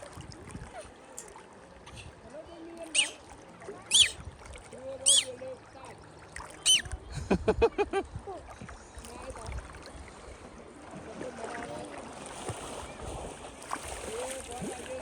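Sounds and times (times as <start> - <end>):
water: 0.0 - 15.0
wind: 0.0 - 15.0
faint voices: 0.5 - 7.2
child squealing: 2.9 - 3.2, 3.9 - 4.2, 5.1 - 5.3, 6.7 - 6.9
short voice-like calls: 2.9 - 3.2, 3.9 - 4.2, 5.0 - 5.3, 6.6 - 6.9.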